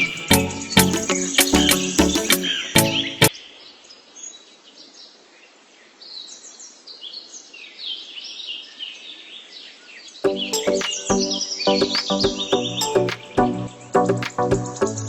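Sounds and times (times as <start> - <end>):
music: 0.0 - 3.3, 10.2 - 15.0
small birds chirping: 0.0 - 15.0.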